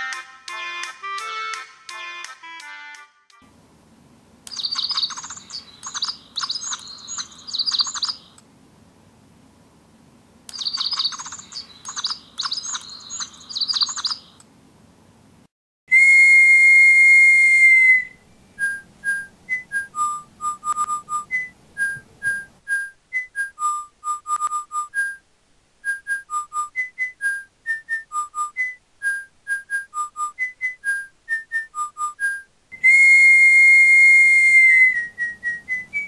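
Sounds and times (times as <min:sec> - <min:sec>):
electronic toy birdsong: 0:04.5 - 0:08.4, 0:10.5 - 0:14.4
loud whistle blast: 0:15.9 - 0:18.2, 0:32.8 - 0:35.2
whistled tune: 0:15.9 - 0:25.2, 0:25.8 - 0:36.0.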